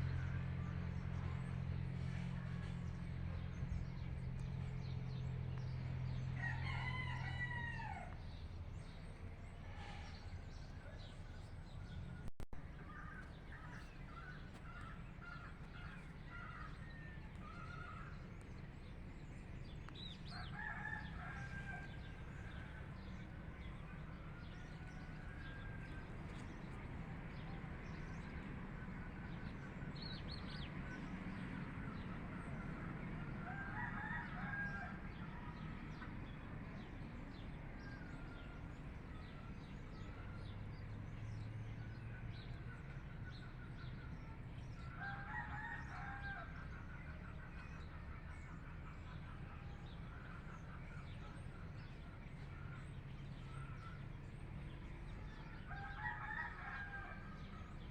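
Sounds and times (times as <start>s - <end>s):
birds chirping: 0.0s - 57.9s
rooster crowing: 6.4s - 8.2s, 20.3s - 22.8s, 33.4s - 35.7s, 44.9s - 46.6s, 55.4s - 57.5s.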